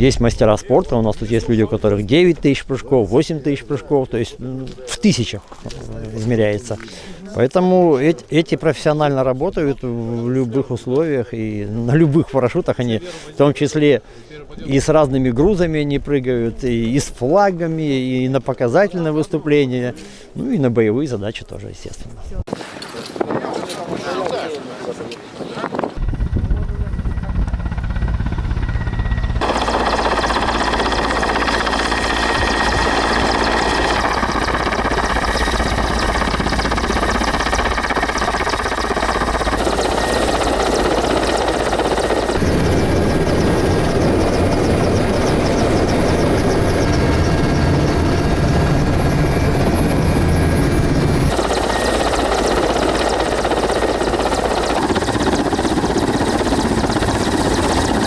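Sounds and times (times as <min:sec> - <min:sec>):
helicopter engine and rotor: 0:26.0 - 0:58.0.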